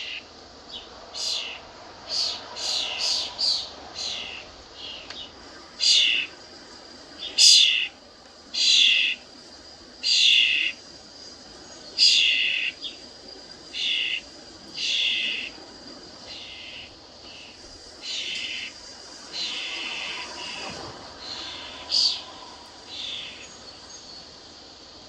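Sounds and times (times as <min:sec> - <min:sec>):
songbird raspy calls: 0:00.0 - 0:06.3, 0:07.2 - 0:08.0, 0:08.6 - 0:09.2, 0:10.0 - 0:10.8, 0:12.0 - 0:13.0, 0:13.8 - 0:15.6, 0:16.3 - 0:22.3, 0:22.9 - 0:23.6.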